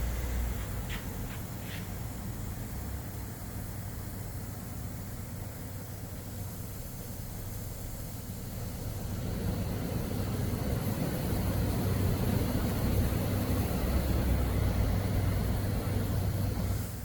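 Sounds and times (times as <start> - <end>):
low mechanical rumble: 0.0 - 5.3
hiss: 0.0 - 17.0.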